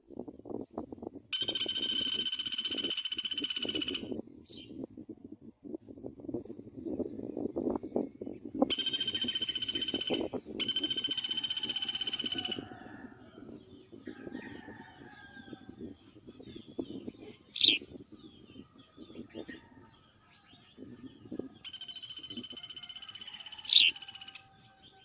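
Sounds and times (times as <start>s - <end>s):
high insect drone: 8.6s - 25.0s.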